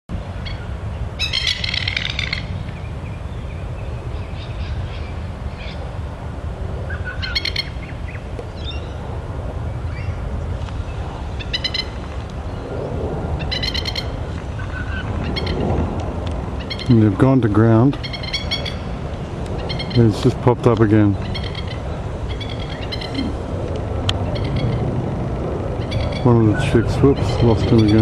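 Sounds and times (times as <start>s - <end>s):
steady low rumble: 0.1s - 28.0s
lapwing calling: 0.4s - 2.6s, 6.9s - 7.9s, 11.4s - 12.0s, 13.4s - 15.6s, 16.6s - 17.0s, 18.0s - 20.2s, 21.2s - 23.5s, 24.2s - 24.9s, 25.8s - 28.0s.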